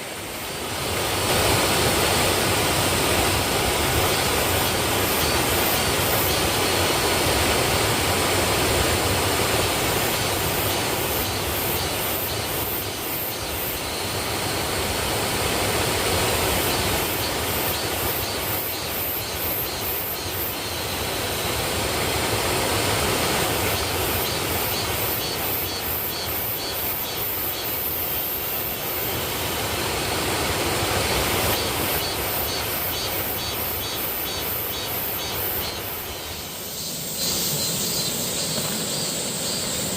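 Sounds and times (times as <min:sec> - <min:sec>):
waterfall rushing: 0:00.0 - 0:19.5.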